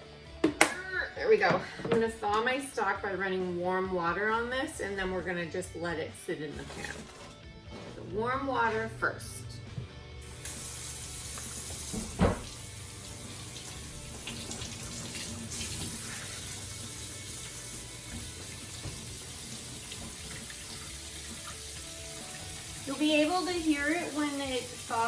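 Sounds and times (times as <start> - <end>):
tap water running into sink: 10.2 - 25.0.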